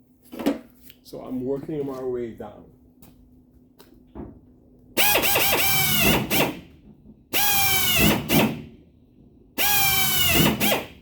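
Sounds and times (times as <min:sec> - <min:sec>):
power drill boring through sheet metal: 0:05.0 - 0:06.6, 0:07.4 - 0:08.6, 0:09.6 - 0:11.0.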